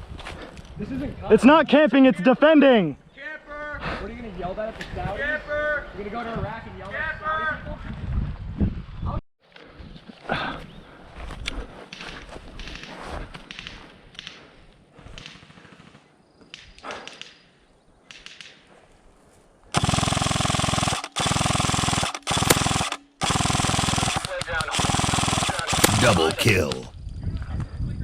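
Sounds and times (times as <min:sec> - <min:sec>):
airsoft rifle firing full-auto: 0:19.8 - 0:26.1.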